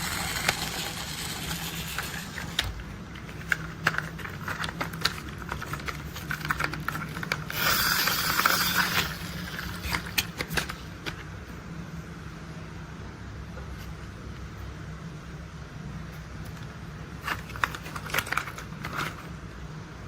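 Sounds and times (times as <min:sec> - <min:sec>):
toy rolling and scraping: 0:00.0 - 0:10.8.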